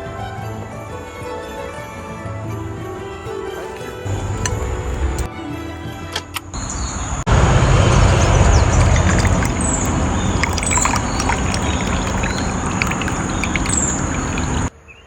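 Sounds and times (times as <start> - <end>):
running water trickling: 6.6 - 14.7
small birds chirping: 6.6 - 15.0.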